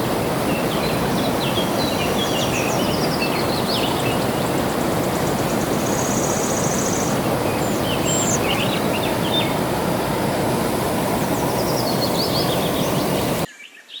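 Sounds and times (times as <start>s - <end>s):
flowing water rushing: 0.0s - 13.5s
songbirds chirping: 0.0s - 14.0s
high bird trill: 0.4s - 9.7s.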